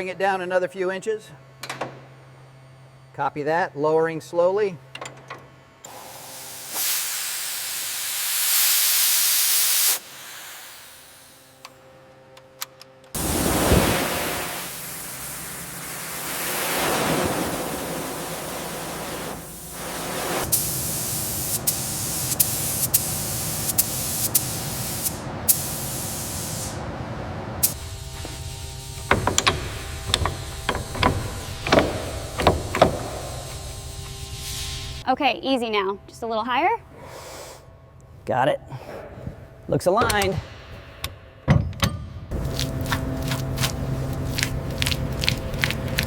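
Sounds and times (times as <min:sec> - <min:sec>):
loud hissing spray: 0:05.9 - 0:11.6, 0:13.2 - 0:26.8, 0:27.6 - 0:35.0.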